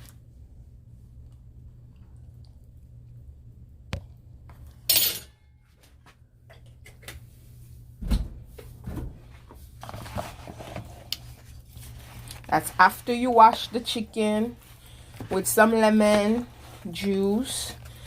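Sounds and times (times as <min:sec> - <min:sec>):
low steady hum: 0:00.0 - 0:18.0
dishes and utensils clattering: 0:04.9 - 0:05.4.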